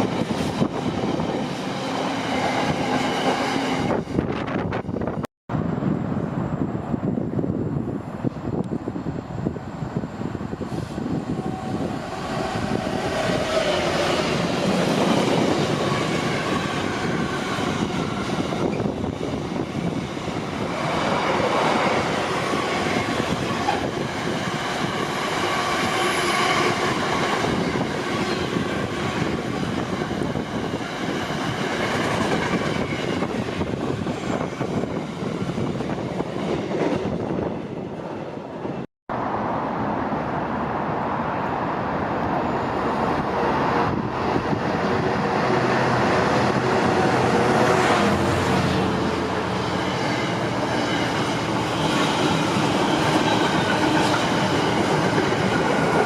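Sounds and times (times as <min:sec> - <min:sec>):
freight train wagons rumbling: 0:42.4 - 0:56.0.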